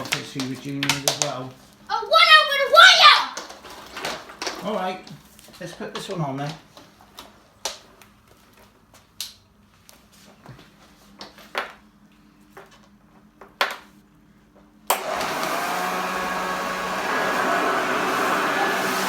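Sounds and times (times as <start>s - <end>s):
vacuum cleaner running: 14.9s - 19.0s.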